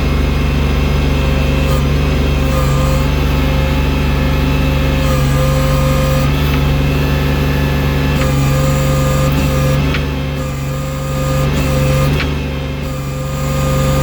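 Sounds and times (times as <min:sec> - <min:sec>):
loader engine running: 0:00.0 - 0:14.0
thin whine: 0:00.0 - 0:14.0.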